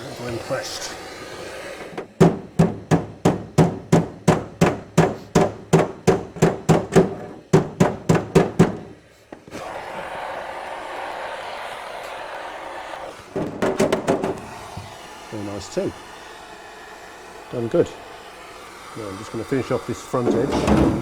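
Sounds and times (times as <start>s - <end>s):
hammer striking metal panel: 2.2s - 9.0s, 13.4s - 14.4s, 20.2s - 21.0s.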